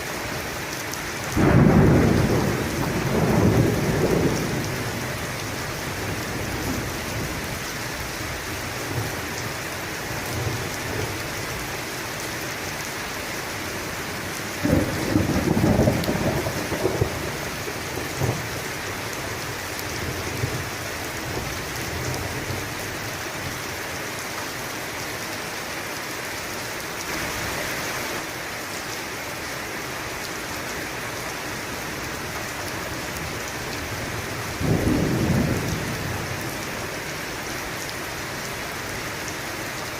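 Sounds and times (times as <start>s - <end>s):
heavy rain falling: 0.0s - 39.9s
thunder rumbling: 1.3s - 7.6s, 14.5s - 18.7s, 33.9s - 36.6s.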